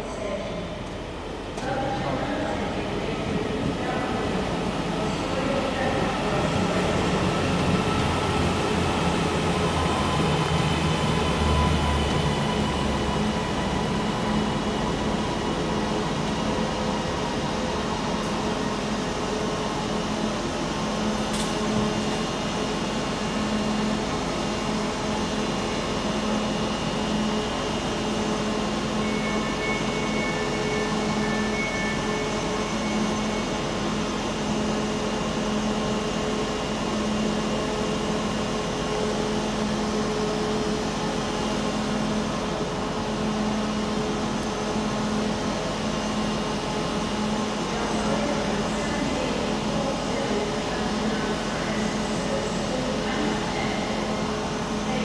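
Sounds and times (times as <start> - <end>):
faint high beeps: 29.0 - 33.6.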